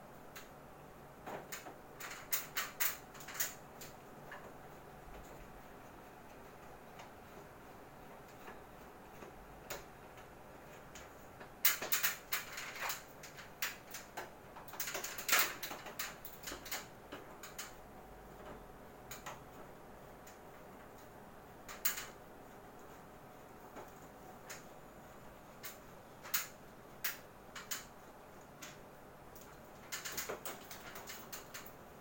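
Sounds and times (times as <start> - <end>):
clicks and rattles of plastic parts: 1.2 - 5.5, 8.3 - 19.6, 21.7 - 22.2, 25.5 - 31.8.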